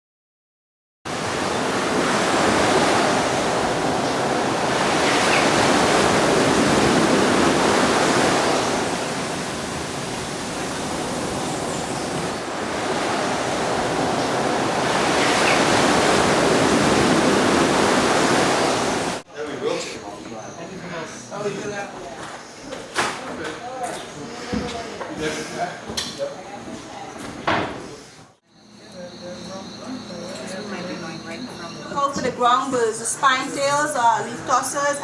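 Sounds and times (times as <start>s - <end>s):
ocean waves breaking: 1.1s - 19.2s.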